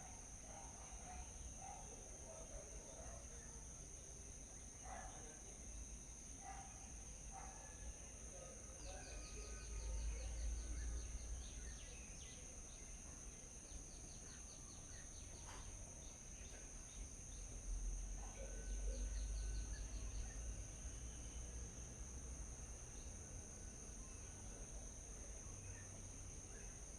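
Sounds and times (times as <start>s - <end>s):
small birds chirping: 8.9s - 17.5s.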